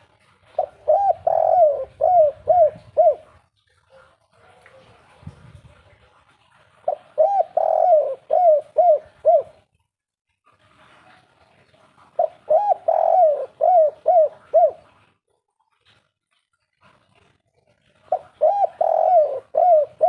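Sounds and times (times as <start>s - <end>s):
dove cooing: 0.4s - 5.0s, 6.8s - 9.7s, 11.8s - 15.1s, 17.9s - 20.0s.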